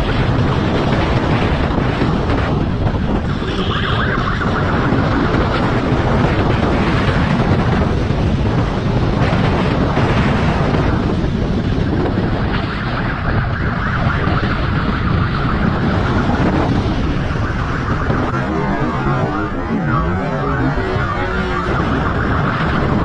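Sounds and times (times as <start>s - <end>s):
motorcycle engine riding fast: 0.0s - 23.0s
wind rushing on microphone: 0.0s - 23.0s.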